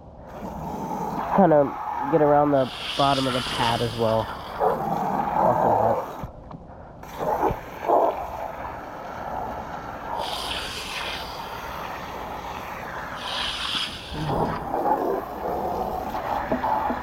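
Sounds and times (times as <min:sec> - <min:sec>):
hose spray hissing on metal: 0:01.1 - 0:04.4, 0:07.1 - 0:14.8.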